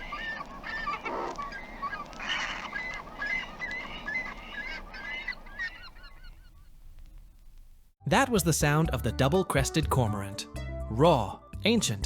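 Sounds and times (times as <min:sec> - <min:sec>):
cormorants calling: 0:00.0 - 0:07.3.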